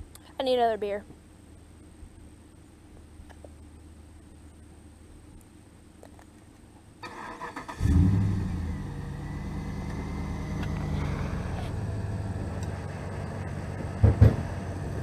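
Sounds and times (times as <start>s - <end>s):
truck engine starting and idling: 7.0s - 15.0s.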